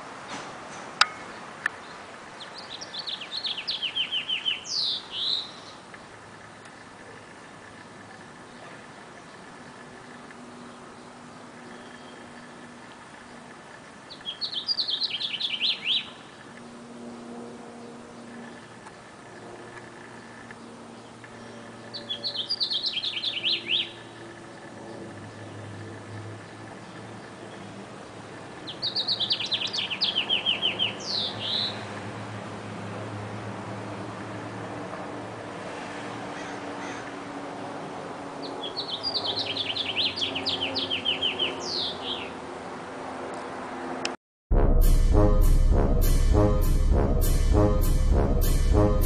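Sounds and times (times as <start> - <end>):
low background noise: 0.0 - 35.5
songbird chirps: 1.0 - 16.6, 17.8 - 25.7, 28.7 - 31.8, 38.5 - 42.4
bird singing high chirps: 2.4 - 5.8, 14.1 - 16.2, 21.9 - 24.1, 28.7 - 31.8, 38.6 - 42.3.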